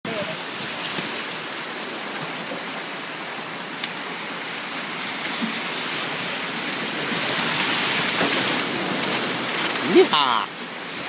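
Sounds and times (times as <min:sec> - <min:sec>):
river water rushing: 0:00.1 - 0:11.0.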